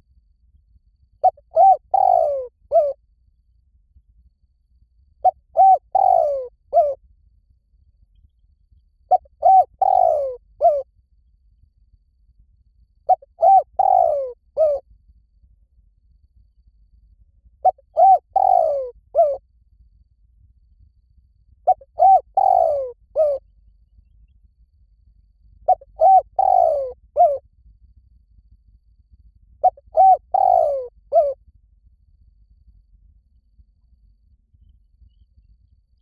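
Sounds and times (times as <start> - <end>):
dove cooing: 1.2 - 3.0, 5.2 - 7.0, 9.1 - 10.8, 13.1 - 14.8, 17.6 - 19.4, 21.6 - 23.4, 25.7 - 27.4, 29.6 - 31.4.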